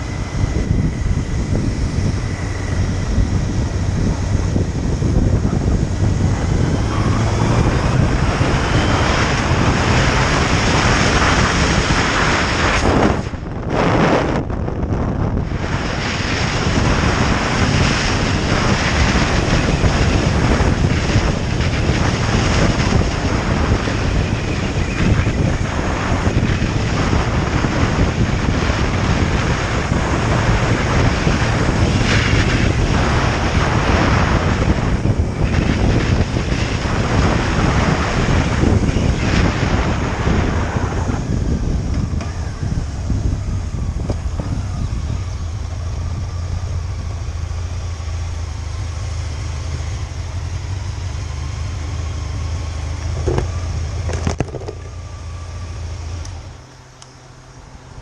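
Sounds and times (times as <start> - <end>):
motorcycle engine: 0.0 - 58.0
road noise: 0.0 - 58.0
wind roaring on microphone: 0.0 - 58.0.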